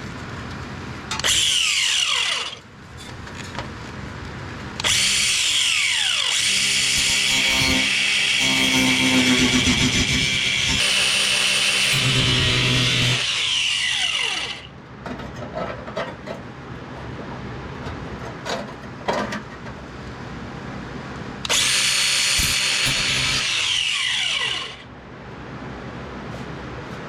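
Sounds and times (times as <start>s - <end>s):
power tool cutting sheet metal: 1.2s - 2.6s, 4.8s - 14.7s, 21.5s - 24.9s.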